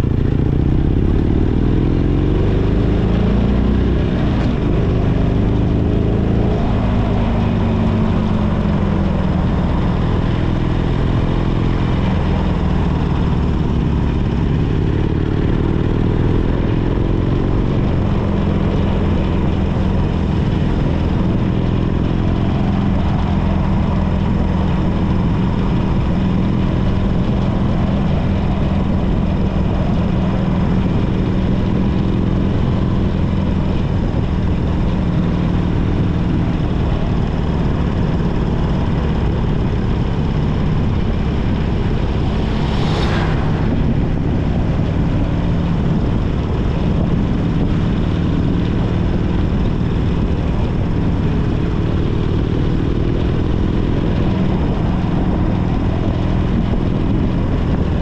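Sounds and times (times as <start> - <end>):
motorcycle engine cruising: 0.0 - 58.0
sharp rushing noise: 40.2 - 46.7.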